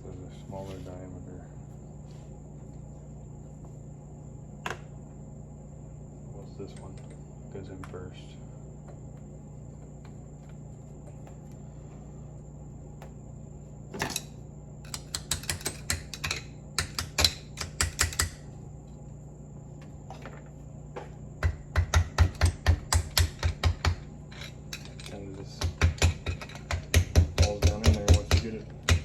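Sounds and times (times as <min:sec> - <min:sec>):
small metal parts clicking: 0:14.9 - 0:18.4, 0:24.3 - 0:25.3.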